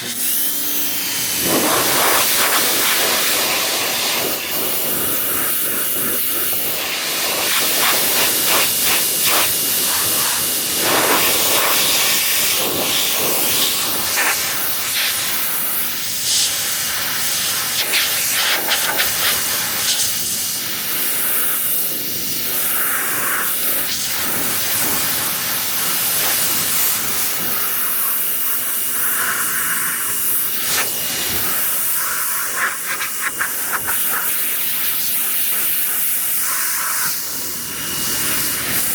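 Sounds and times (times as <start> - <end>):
pressure washer spraying water: 0.0 - 38.9.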